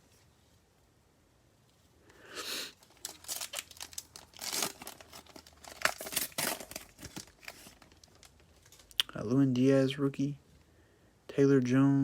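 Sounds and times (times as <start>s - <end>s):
foil wrapper tearing and crinkling: 2.8s - 9.0s.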